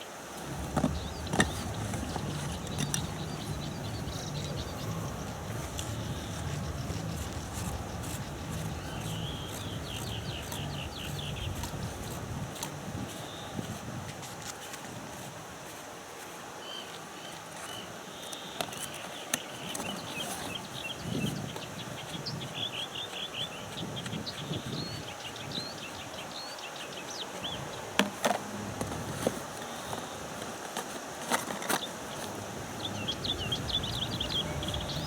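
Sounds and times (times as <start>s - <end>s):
small bird chirping: 0.4s - 12.4s, 31.8s - 35.0s
low rustling: 0.4s - 13.1s, 32.0s - 35.0s.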